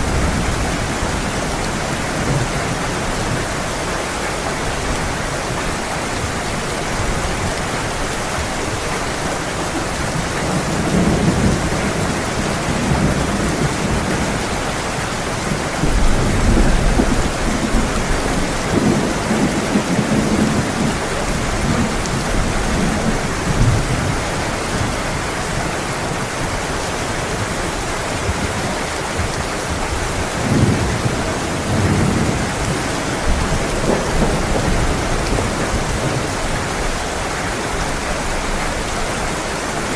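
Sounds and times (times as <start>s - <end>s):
thunder rumbling: 0.0s - 3.7s, 10.0s - 24.9s, 28.2s - 37.0s
heavy rain falling: 0.0s - 39.9s.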